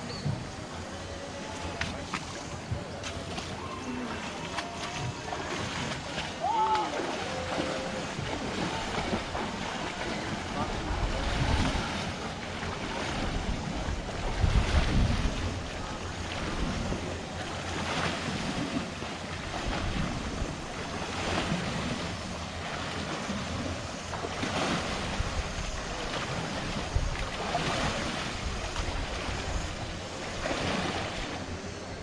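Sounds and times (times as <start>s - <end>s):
wind rushing over microphone: 7.3s - 31.9s.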